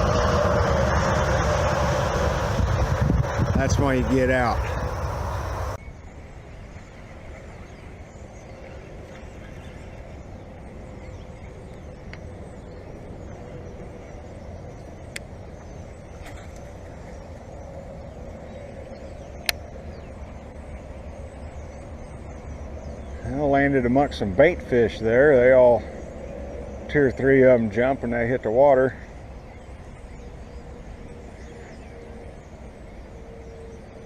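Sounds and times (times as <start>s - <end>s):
wind on microphone: 0.0s - 23.1s.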